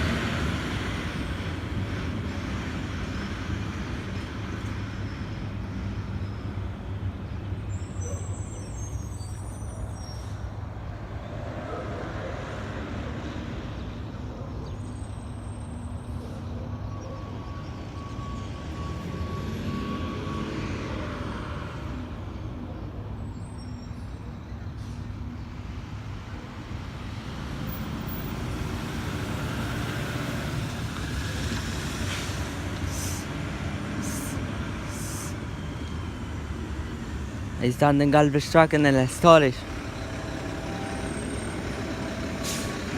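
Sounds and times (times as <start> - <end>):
garbage truck diesel engine: 0.0 - 42.9
air hissing: 32.1 - 33.4.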